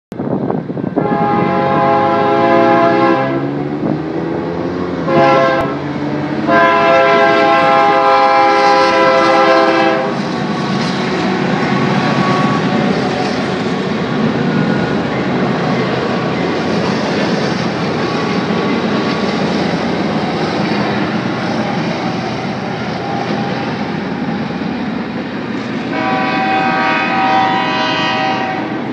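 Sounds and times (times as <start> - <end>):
train rumbling on rails: 0.1 - 28.9
train horn blasts: 1.0 - 3.7, 5.0 - 10.3, 11.2 - 13.8, 25.9 - 28.9.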